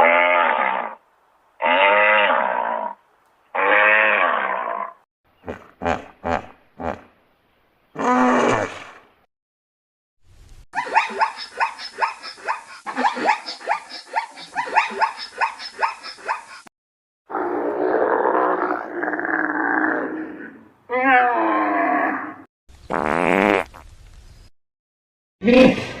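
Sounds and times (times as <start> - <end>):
animal barking calls: 10.8 - 16.7.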